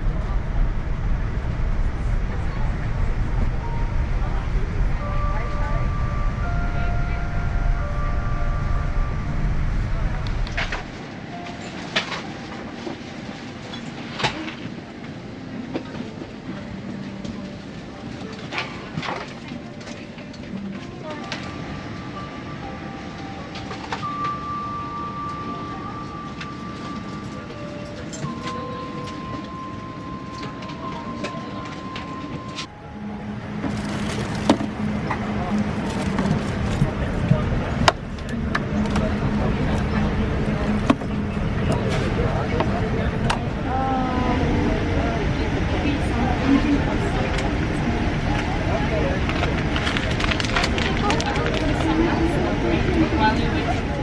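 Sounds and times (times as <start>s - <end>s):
thin steady whine: 0.0s - 19.8s
airliner cabin rumble: 0.0s - 54.0s.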